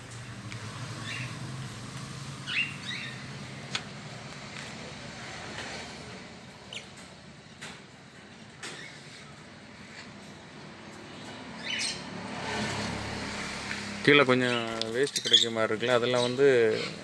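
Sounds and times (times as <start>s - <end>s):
parrots chirping: 0.7s - 3.7s, 6.6s - 7.1s, 11.1s - 13.5s, 14.4s - 17.0s.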